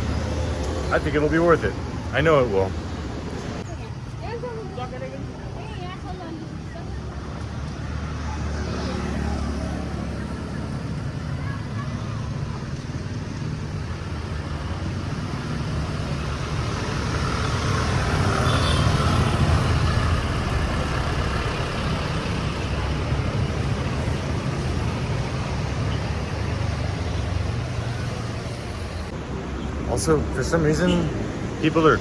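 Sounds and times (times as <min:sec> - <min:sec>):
vehicle engines in traffic: 0:00.0 - 0:32.0.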